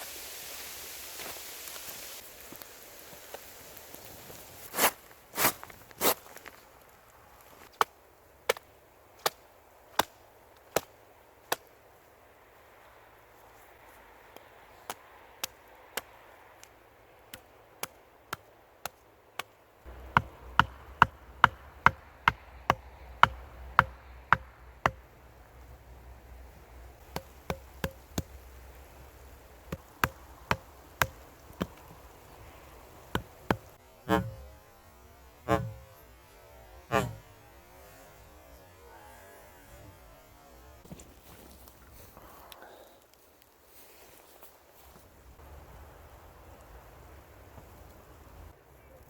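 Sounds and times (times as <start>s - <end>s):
chopping wood: 17.3s - 25.0s, 27.0s - 28.4s, 29.7s - 32.0s, 33.1s - 37.6s
heavy dull thuds: 33.1s - 34.6s.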